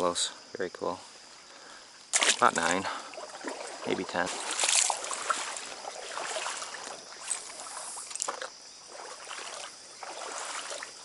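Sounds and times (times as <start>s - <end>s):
stream water splashing: 2.1s - 11.0s.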